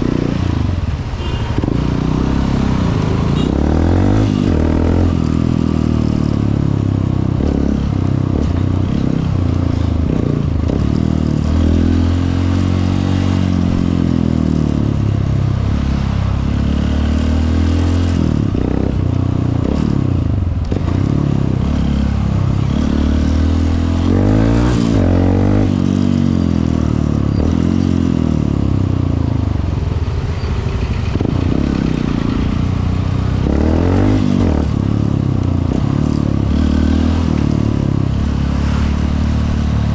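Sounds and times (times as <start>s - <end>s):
wind and road noise: 0.0s - 39.9s
motorcycle engine accelerating: 1.6s - 39.9s.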